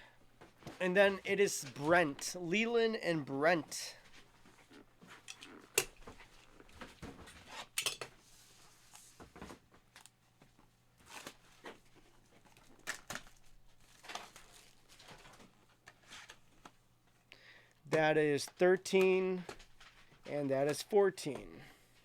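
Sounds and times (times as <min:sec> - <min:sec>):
cardboard and wrappers rustling: 0:11.0 - 0:16.7.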